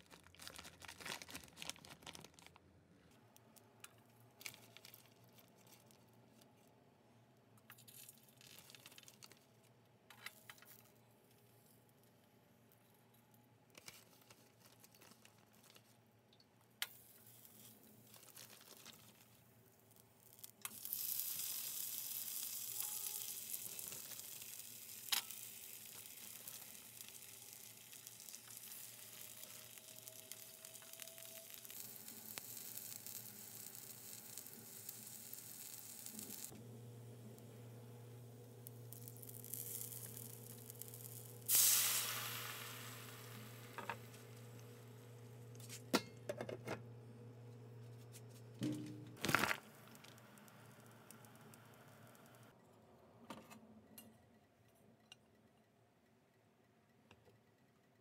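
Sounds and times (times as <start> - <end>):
plastic packaging crinkling: 0.0 - 3.7, 4.4 - 6.6, 18.0 - 19.4, 22.6 - 36.5, 49.2 - 50.4
dumplings sizzling in frying pan: 20.1 - 45.6.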